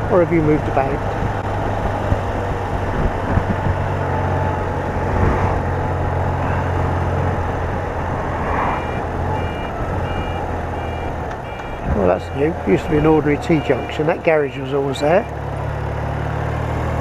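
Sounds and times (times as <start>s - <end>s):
reversing alarm beeping: 8.8s - 11.9s, 12.8s - 14.1s.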